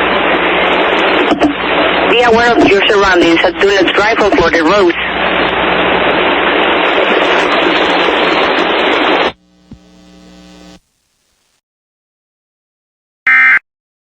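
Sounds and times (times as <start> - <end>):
radio static hiss: 0.0 - 11.6
faint hum: 0.1 - 11.6.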